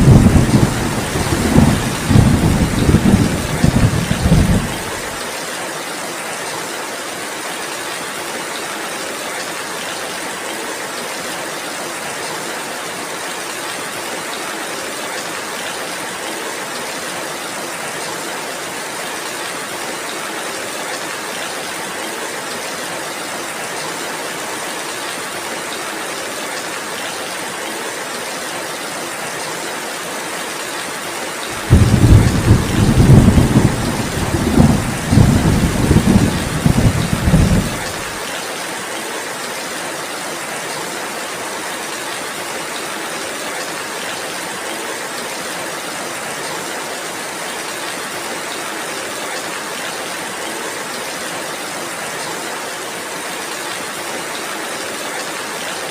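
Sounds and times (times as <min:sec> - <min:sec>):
thunder rumble: 0:00.0 - 0:05.1, 0:31.6 - 0:38.1
heavy rain hissing: 0:00.0 - 0:05.5, 0:31.5 - 0:38.7.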